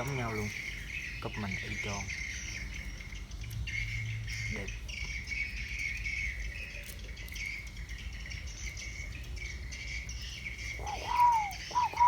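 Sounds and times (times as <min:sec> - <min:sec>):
insects chirring: 0:00.0 - 0:12.0
bird call: 0:08.6 - 0:12.0.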